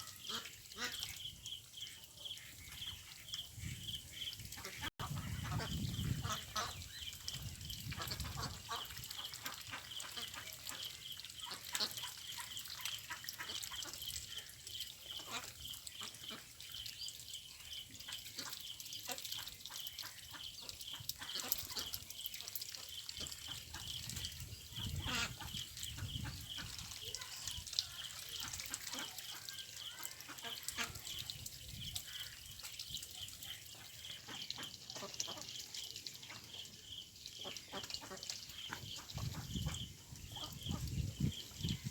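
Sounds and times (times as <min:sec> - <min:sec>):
ducks quacking: 0:00.0 - 0:01.2, 0:04.1 - 0:07.0, 0:08.0 - 0:14.4, 0:24.7 - 0:31.4, 0:37.4 - 0:40.9
water splashes: 0:00.0 - 0:41.9.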